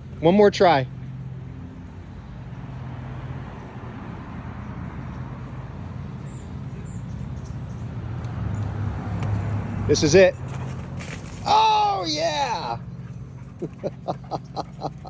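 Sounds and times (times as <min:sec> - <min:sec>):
outdoor background noise: 0:00.0 - 0:15.0
low motor hum: 0:12.4 - 0:15.0.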